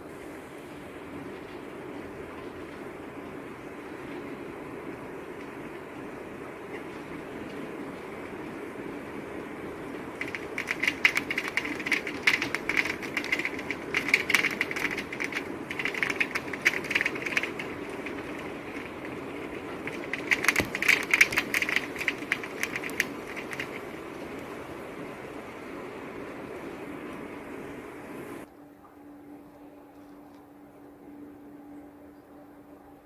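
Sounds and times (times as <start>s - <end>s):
steady rain: 0.1s - 28.5s
crackling raindrop ticks: 5.3s - 5.8s, 9.3s - 25.8s.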